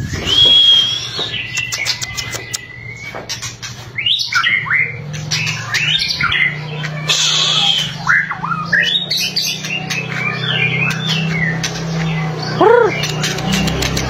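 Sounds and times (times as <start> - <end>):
bird singing whistled notes: 0.0 - 3.3, 4.0 - 13.7
bird harsh rasping call: 0.8 - 11.5.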